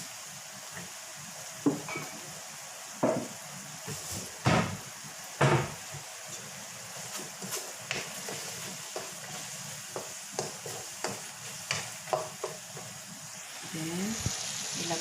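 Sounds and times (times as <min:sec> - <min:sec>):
sauce sizzling: 0:00.0 - 0:15.0
spatula knocking against pan: 0:09.9 - 0:12.6.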